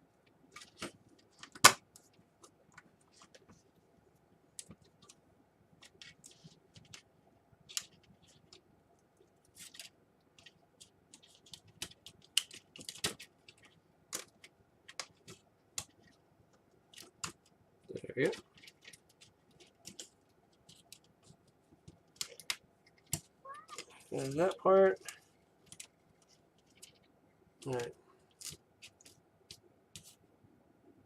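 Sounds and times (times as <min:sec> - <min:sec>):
plastic parts clicking and tapping: 0:18.2 - 0:30.1.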